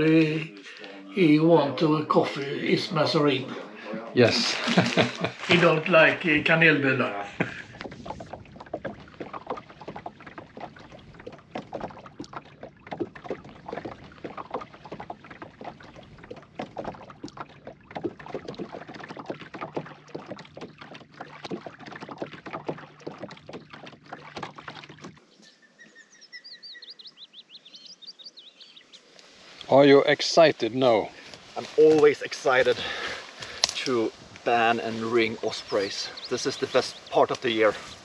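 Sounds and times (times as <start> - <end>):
birds chirping: 0.0 - 38.0
boat splashing and knocking: 4.4 - 25.3, 31.1 - 38.0.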